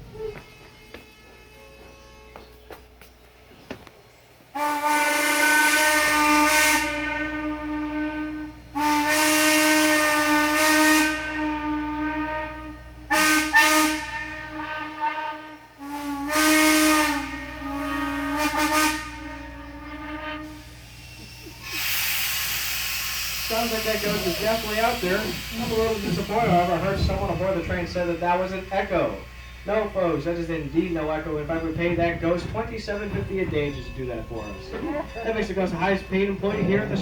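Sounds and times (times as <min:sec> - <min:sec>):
steam whistle blasts: 0:04.5 - 0:31.8
rush of steam: 0:20.4 - 0:34.6.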